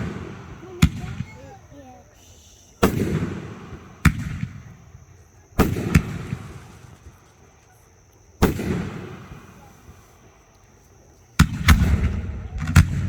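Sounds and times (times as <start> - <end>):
fireworks bangs: 0.0 - 1.8, 2.8 - 7.7, 8.4 - 10.2, 11.4 - 13.0.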